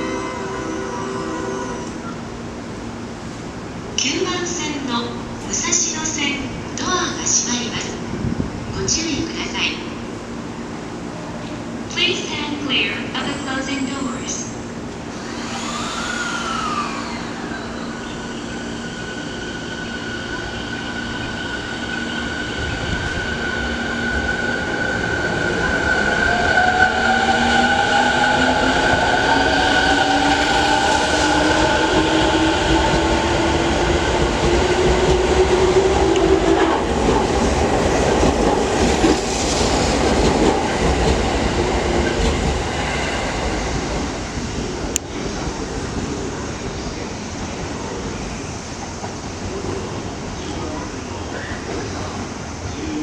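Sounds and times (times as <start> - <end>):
rumble of train wheels: 0.0 - 53.0
train motors whining: 14.9 - 24.3.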